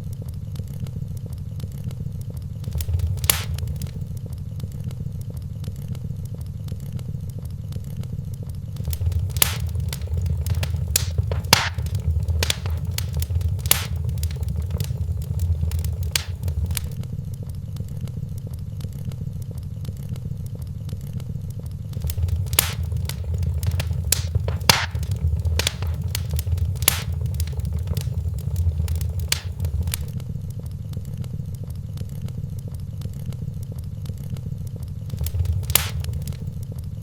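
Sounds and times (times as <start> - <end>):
low rumble of flames: 1.6 - 5.4, 8.2 - 17.5, 18.2 - 36.8
fire crackling and popping: 2.6 - 4.2, 8.8 - 17.0, 21.9 - 30.2, 35.1 - 36.6.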